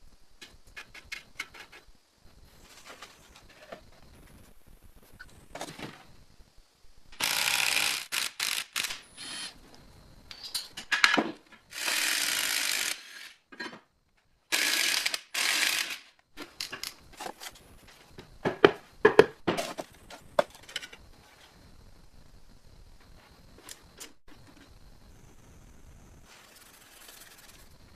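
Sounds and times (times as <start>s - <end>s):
hissing scraping noise: 24.4s - 27.9s.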